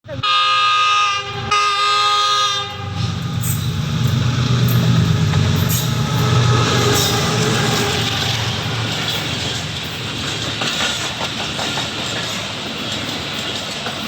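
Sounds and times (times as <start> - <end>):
train horn blasts: 0.1 - 9.6
train rumbling on rails: 0.1 - 14.0.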